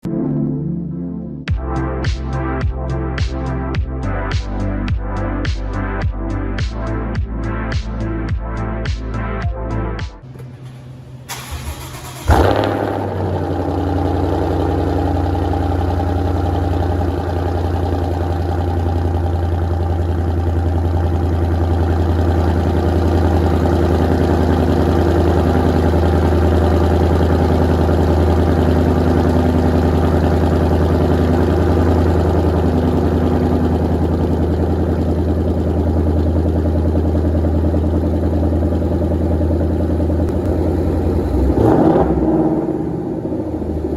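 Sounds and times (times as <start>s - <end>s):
engine cranking: 10.3s - 13.4s
car engine loud idle: 10.3s - 43.9s.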